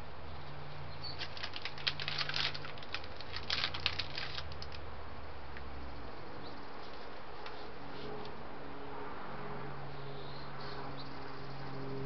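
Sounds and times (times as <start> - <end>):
bird pecking peanut shells: 1.1 - 4.8.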